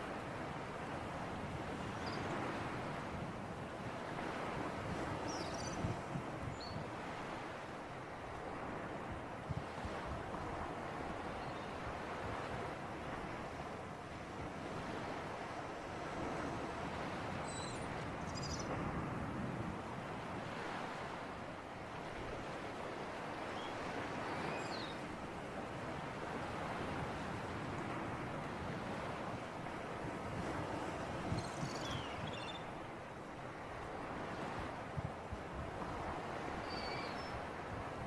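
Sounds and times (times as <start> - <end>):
sea surf washing: 0.0 - 38.0.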